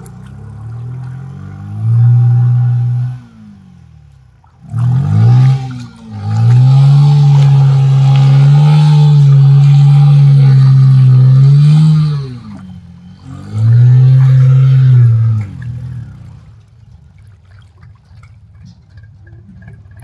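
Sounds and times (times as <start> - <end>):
motorcycle engine revving: 0.0 - 16.7.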